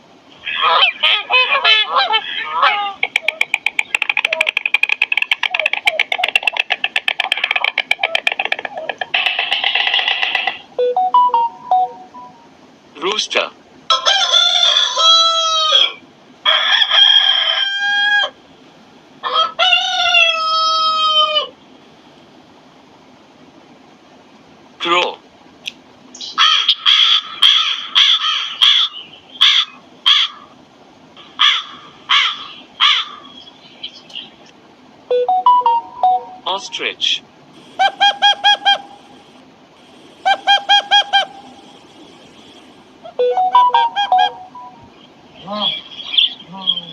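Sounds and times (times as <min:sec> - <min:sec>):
bird calling: 0:00.4 - 0:12.3, 0:26.1 - 0:30.6, 0:31.2 - 0:46.9
rooster crowing: 0:13.9 - 0:18.4, 0:19.2 - 0:21.6.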